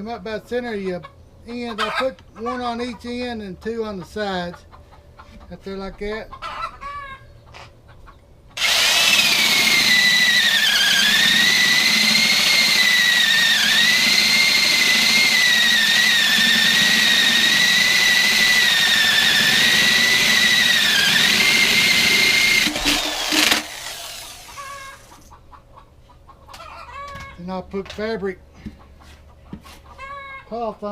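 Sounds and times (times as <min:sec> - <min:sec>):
electric drill boring into wood: 0:08.6 - 0:25.3.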